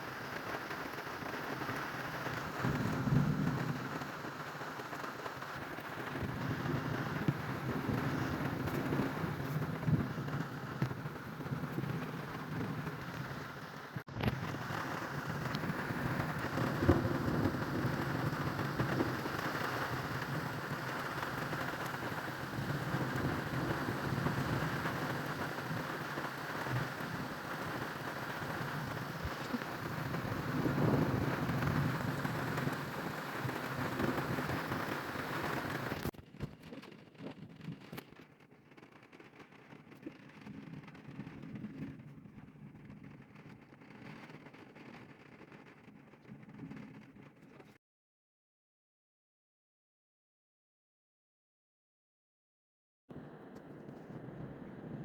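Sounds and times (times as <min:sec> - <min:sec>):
heavy rain falling: 0:00.0 - 0:47.1
low thunder rumbling: 0:01.5 - 0:13.7, 0:14.4 - 0:36.1, 0:53.1 - 0:55.0.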